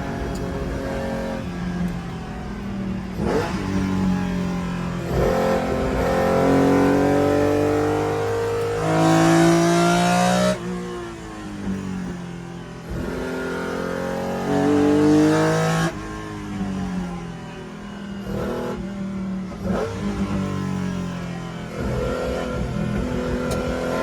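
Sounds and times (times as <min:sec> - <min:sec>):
race car engine accelerating: 0:00.0 - 0:24.0.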